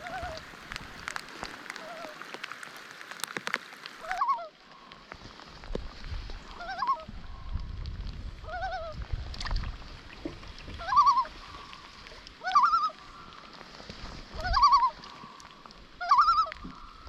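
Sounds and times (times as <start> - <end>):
loon quavering calls: 6.6 - 7.1, 10.8 - 11.7, 12.4 - 13.3, 14.4 - 15.2, 16.0 - 17.0.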